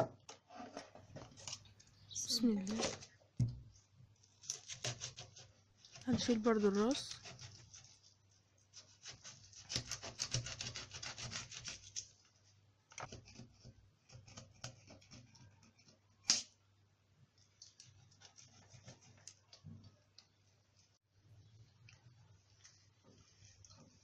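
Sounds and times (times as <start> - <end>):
knife rasping through fish: 4.4 - 8.1, 8.7 - 12.1.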